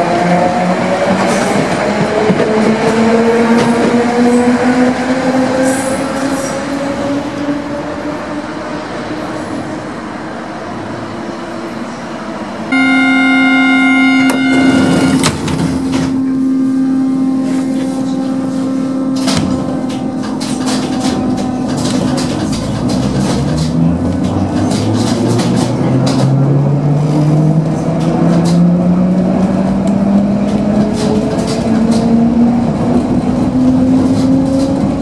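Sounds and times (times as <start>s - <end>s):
low train hum: 0.0s - 35.0s
electric train whine: 0.7s - 22.9s
loud door buzzer: 12.8s - 15.8s.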